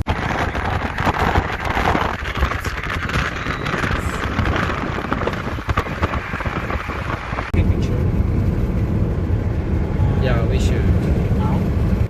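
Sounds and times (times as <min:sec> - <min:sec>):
tyre rumble on road: 0:00.0 - 0:10.0
wind rushing past: 0:00.0 - 0:10.1
wind buffeting microphone: 0:00.0 - 0:12.0.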